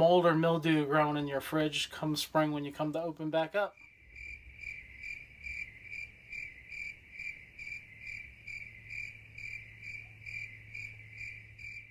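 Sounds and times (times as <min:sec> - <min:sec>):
cricket chirping: 0:03.8 - 0:11.9.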